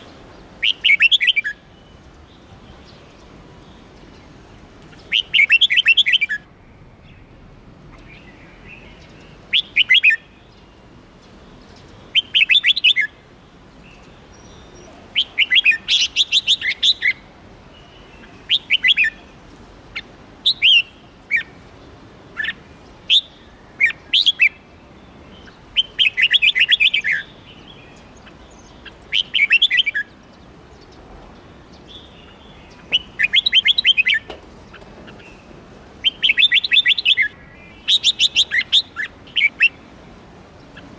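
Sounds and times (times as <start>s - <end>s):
faint steady hiss: 0.0s - 40.9s
bird singing bright notes: 22.4s - 39.9s.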